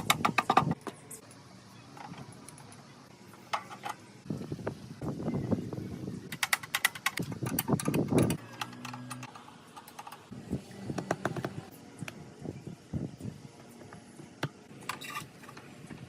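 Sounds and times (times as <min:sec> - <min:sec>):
hand tools clicking and tapping: 0:00.0 - 0:01.0, 0:06.3 - 0:10.3.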